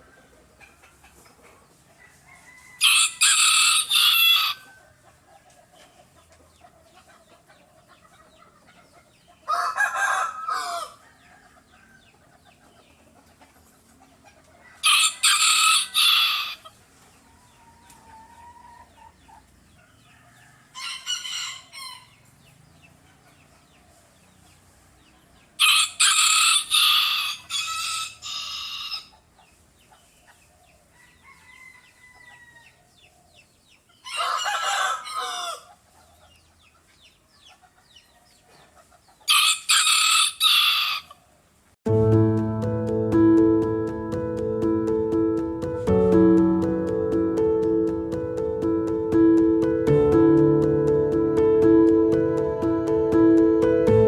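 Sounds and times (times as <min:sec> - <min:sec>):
roosters crowing: 0:01.9 - 0:05.2, 0:09.5 - 0:12.2, 0:14.6 - 0:16.8, 0:20.0 - 0:22.2, 0:25.6 - 0:29.1, 0:31.0 - 0:32.9, 0:34.0 - 0:35.8, 0:39.3 - 0:41.2.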